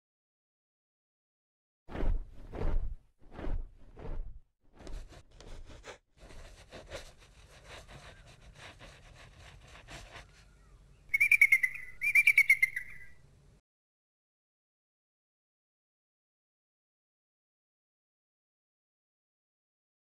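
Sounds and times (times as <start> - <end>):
bird wings flapping: 1.9 - 5.2
warbling bird calls: 10.0 - 13.2.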